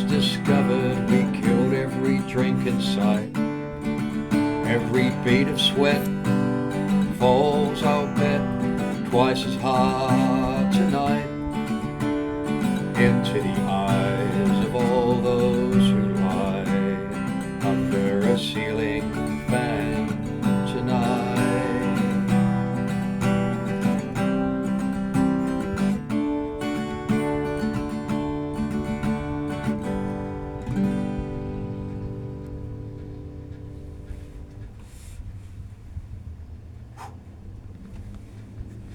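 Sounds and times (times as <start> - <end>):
person singing: 0.0 - 3.4, 4.6 - 23.0
acoustic guitar strumming: 0.0 - 35.0.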